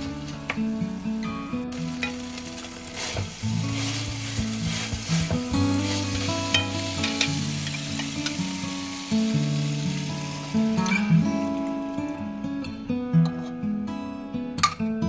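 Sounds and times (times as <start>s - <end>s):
meat sizzling in a wok: 0.0s - 12.2s
background music: 0.0s - 15.0s
wooden spatula scraping a wok: 1.7s - 8.4s.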